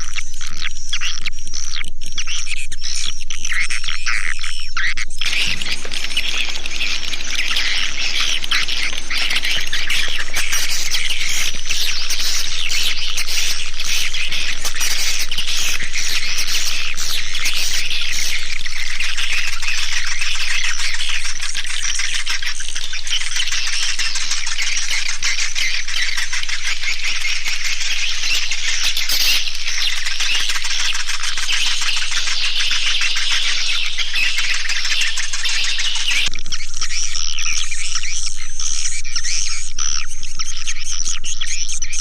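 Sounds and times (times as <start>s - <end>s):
swiftlets twittering chirps: 5.2s - 36.3s.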